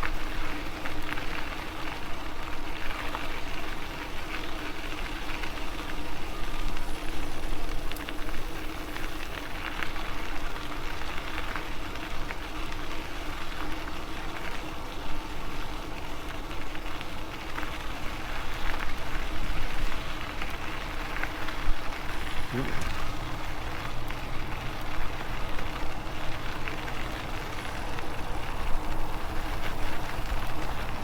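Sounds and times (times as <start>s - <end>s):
rush of tyres and air: 17.9s - 31.0s.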